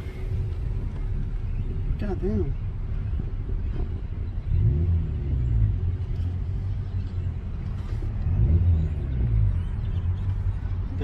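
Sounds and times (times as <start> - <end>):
loud low car exhaust drone: 0.0 - 2.0.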